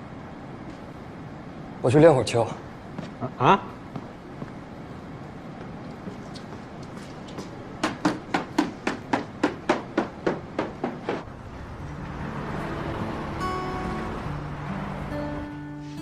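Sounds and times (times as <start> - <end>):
sharp knocks: 7.4 - 11.2
soft background guitar music: 11.6 - 16.0.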